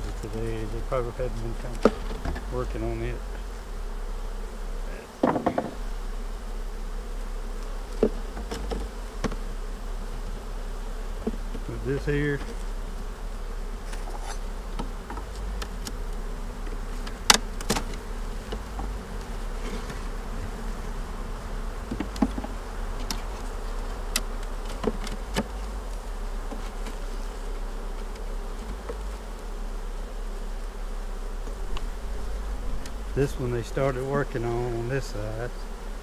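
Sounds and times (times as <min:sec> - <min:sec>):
bees buzzing: 0:00.0 - 0:36.0
wooden hive frames knocking: 0:00.1 - 0:02.9, 0:05.1 - 0:06.2, 0:07.5 - 0:13.0, 0:13.6 - 0:29.8.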